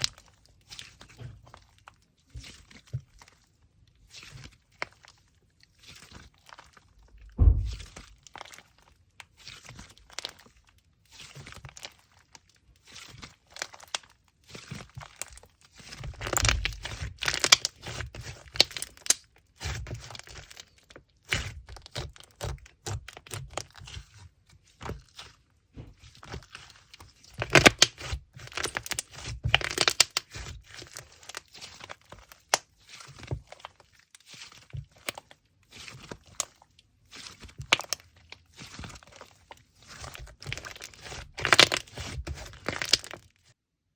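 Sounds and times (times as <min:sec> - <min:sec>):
thump: 0:07.2 - 0:08.1, 0:25.8 - 0:26.0
rustling packaging: 0:14.6 - 0:19.1, 0:25.9 - 0:43.5
packaging crinkling and tearing: 0:14.6 - 0:19.2, 0:26.1 - 0:43.5.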